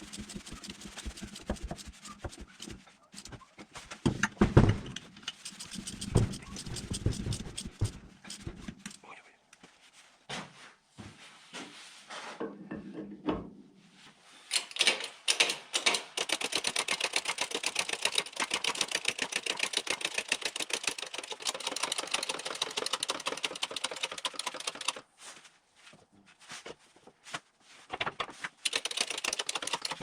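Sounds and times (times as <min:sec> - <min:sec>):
rapid mechanical clicking: 0:00.0 - 0:03.4, 0:05.0 - 0:09.0, 0:14.5 - 0:25.0, 0:28.6 - 0:30.0.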